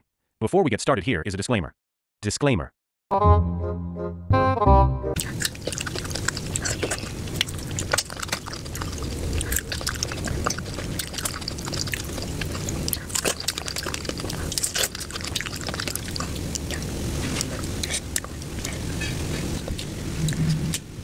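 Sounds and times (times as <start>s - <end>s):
wet chewing and mouth smacking: 5.2s - 20.9s.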